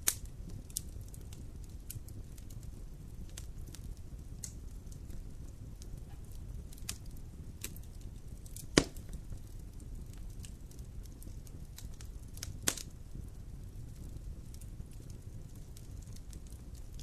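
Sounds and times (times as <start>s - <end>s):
campfire crackling: 0.0s - 17.0s
sharp loud fire pops: 8.7s - 9.2s.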